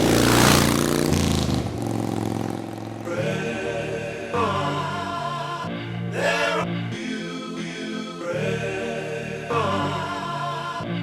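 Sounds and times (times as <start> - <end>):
motorcycle engine running: 0.0 - 3.2
music with singing: 2.8 - 11.0.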